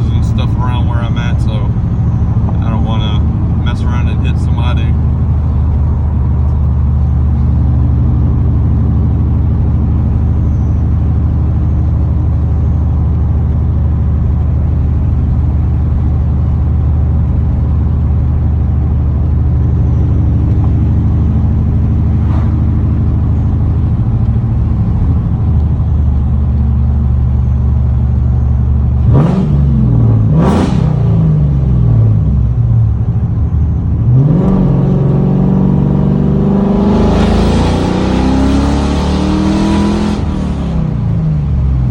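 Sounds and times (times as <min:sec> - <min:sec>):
car engine idling loudly: 0:00.0 - 0:30.3
engine throttle blips: 0:00.0 - 0:41.9.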